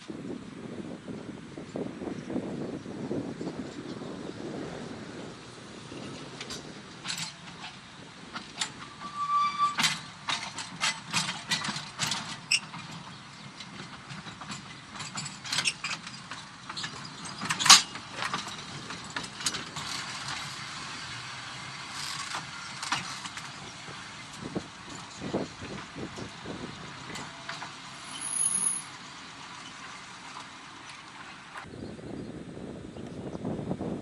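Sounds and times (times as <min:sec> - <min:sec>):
electric tram running: 0:00.2 - 0:34.0
short pitched tone: 0:09.0 - 0:09.8.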